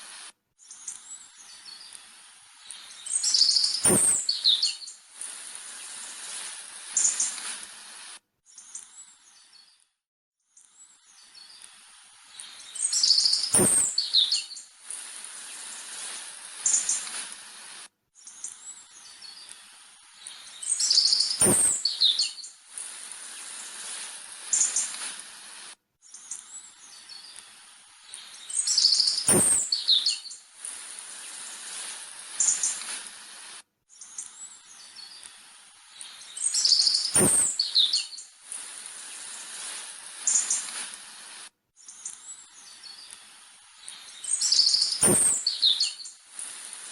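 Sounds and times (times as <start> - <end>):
birds chirping and whistling: 2.7 - 5.0, 12.4 - 14.6, 20.2 - 22.5, 28.1 - 30.4, 36.0 - 38.3, 43.8 - 46.2
sharp click: 3.7 - 4.4, 13.3 - 14.1, 21.2 - 22.0, 29.0 - 29.8, 36.8 - 37.7, 44.7 - 45.7.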